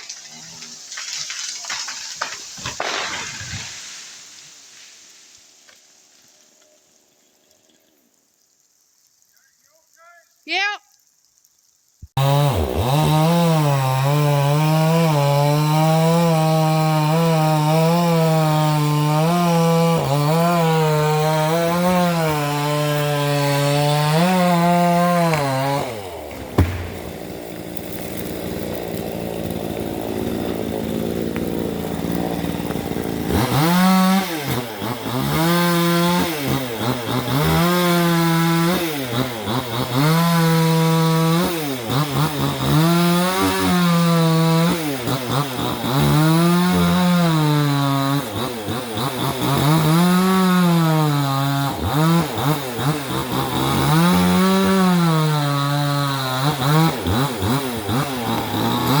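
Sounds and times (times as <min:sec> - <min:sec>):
chainsaw revving while cutting: 0:12.2 - 0:59.0.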